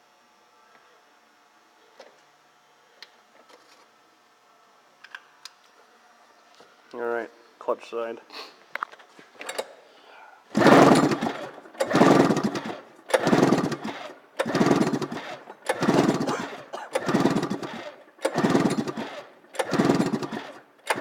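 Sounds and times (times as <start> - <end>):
engine pull-starter cranking: 10.5 - 21.0.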